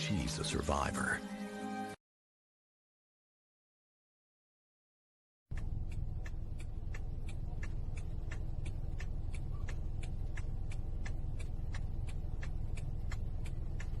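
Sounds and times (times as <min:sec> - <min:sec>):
engine idling rumble: 0:05.5 - 0:14.0
sharp regular ticking: 0:05.5 - 0:14.0.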